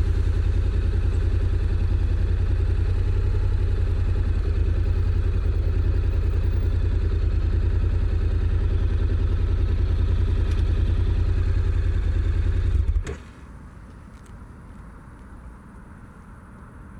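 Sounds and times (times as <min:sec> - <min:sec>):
motorcycle engine idling: 0:00.0 - 0:13.1.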